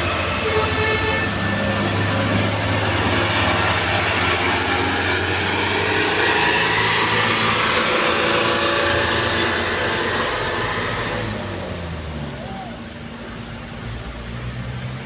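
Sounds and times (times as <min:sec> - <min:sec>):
heavy truck engine running: 0:00.0 - 0:15.0.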